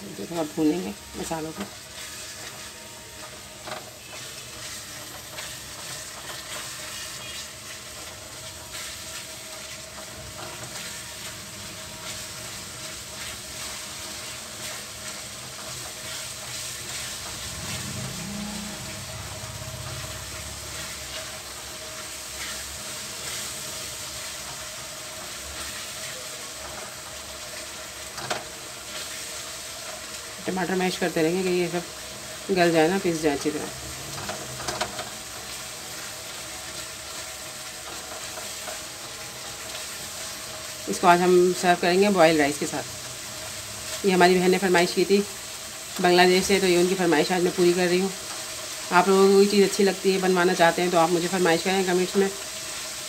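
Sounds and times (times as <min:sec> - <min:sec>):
masala sizzling in hot oil: 0:00.0 - 0:53.0
spatula scraping pan: 0:01.6 - 0:23.6.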